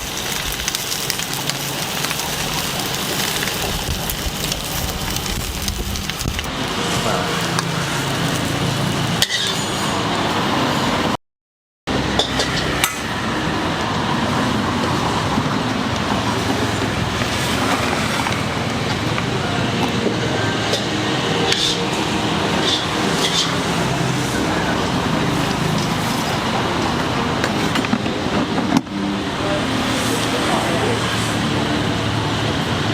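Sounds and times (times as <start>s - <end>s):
burner noise: 0.0s - 11.2s
food sizzling in a wok: 0.0s - 11.2s, 20.3s - 27.8s
metal spatula scraping wok: 6.7s - 10.0s, 20.6s - 24.2s.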